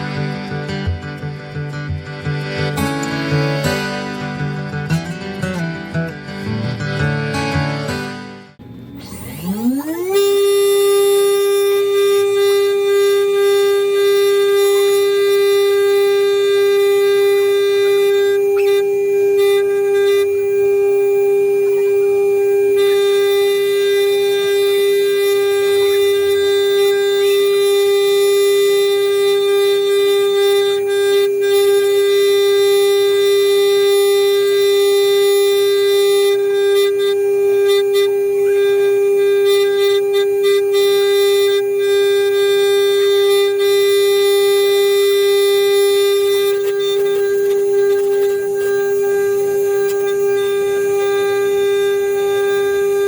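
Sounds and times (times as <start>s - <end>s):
router spindle whine: 8.6s - 53.0s.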